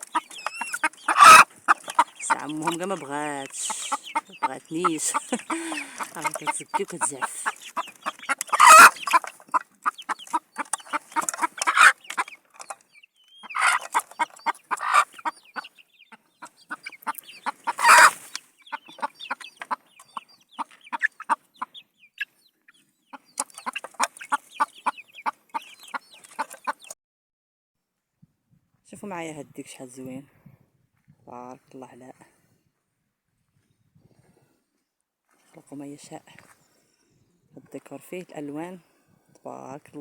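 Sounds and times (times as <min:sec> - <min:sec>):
hen squawking: 0:00.0 - 0:12.0, 0:13.4 - 0:15.7, 0:16.4 - 0:19.8
hen clucking agitatedly: 0:00.0 - 0:22.4, 0:23.1 - 0:27.0.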